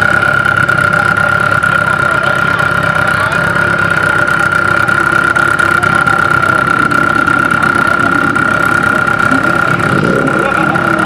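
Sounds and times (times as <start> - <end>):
car engine idling: 0.0 - 11.0
high-pitched whine: 5.8 - 11.0.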